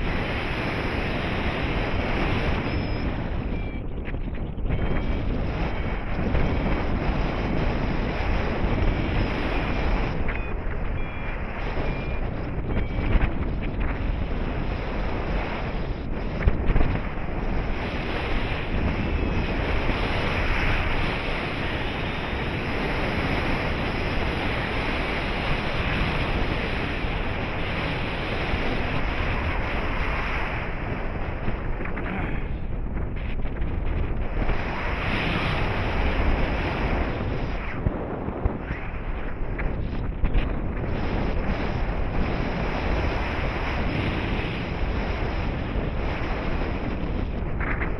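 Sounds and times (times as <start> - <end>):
wind rushing over microphone: 0.0 - 47.9.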